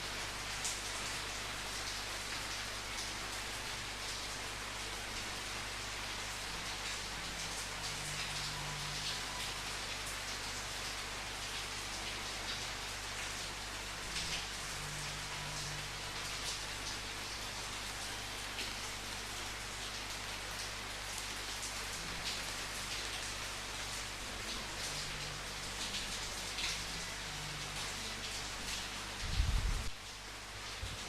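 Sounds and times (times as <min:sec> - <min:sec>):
steady rain falling: 0:00.0 - 0:31.0.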